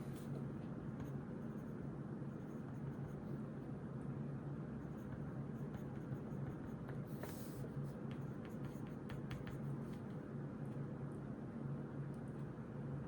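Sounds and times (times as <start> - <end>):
steady low hum: 0.0 - 13.0
pen writing on paper: 4.9 - 9.8.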